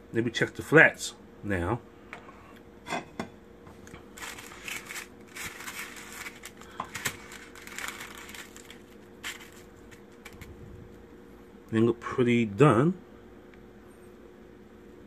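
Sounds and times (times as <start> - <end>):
crispy chicken crackling: 3.8 - 11.1.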